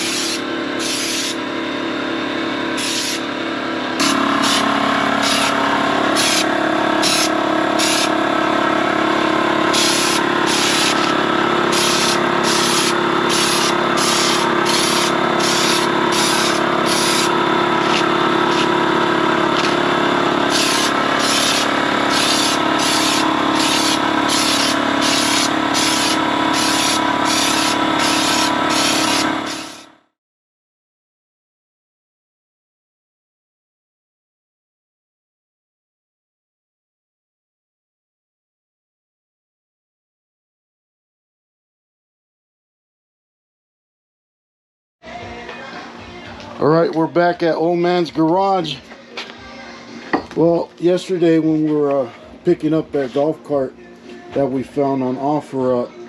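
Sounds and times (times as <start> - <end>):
spray gun hissing bursts: 0.0 - 1.4, 2.8 - 3.3, 4.0 - 8.2, 9.6 - 18.9, 19.5 - 29.9
air compressor humming: 0.0 - 30.0.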